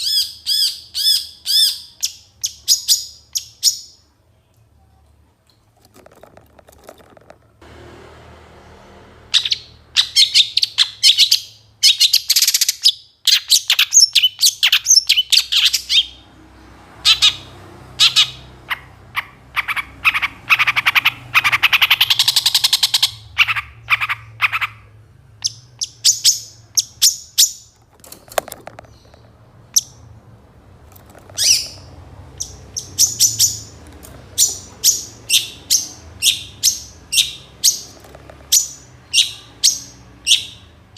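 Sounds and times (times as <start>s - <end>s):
bird singing varied song: 0.0s - 4.2s, 9.3s - 30.2s, 31.2s - 40.9s
faint low hum: 4.0s - 10.4s.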